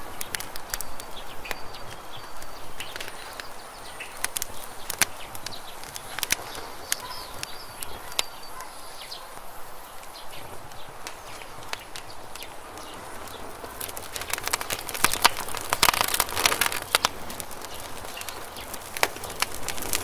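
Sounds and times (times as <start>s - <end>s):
campfire crackling and popping: 0.0s - 20.0s
fire low hiss: 0.0s - 20.0s.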